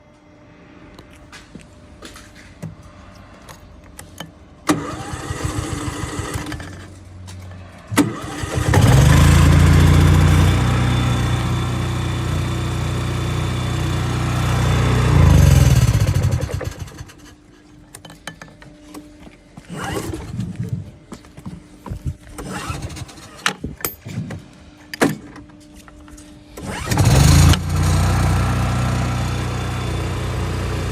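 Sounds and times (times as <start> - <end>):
petrol engine running: 4.6 - 7.0, 7.9 - 17.3, 26.6 - 30.9.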